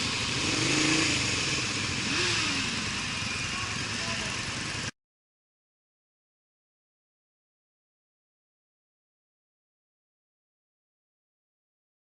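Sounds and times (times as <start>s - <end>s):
motorcycle running: 0.0s - 4.9s
wind and road noise: 0.0s - 4.9s.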